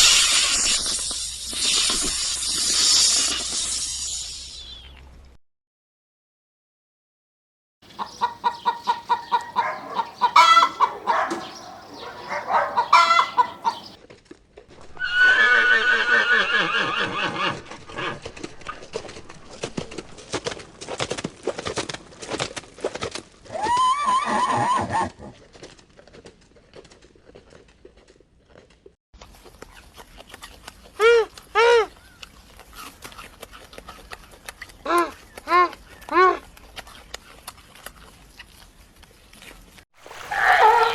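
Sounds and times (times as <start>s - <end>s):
farm animal calls: 7.9s - 14.0s, 40.3s - 40.9s.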